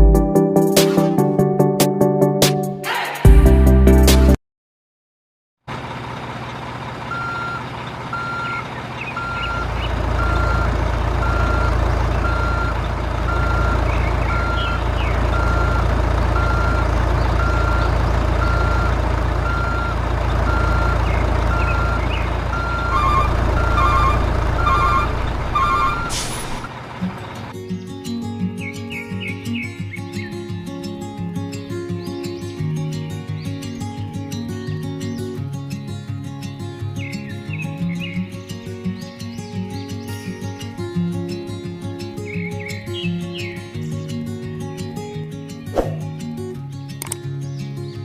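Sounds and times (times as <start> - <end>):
truck engine running: 5.7 - 27.6
reversing alarm beeping: 7.1 - 26.7
higher beeping: 7.1 - 26.8.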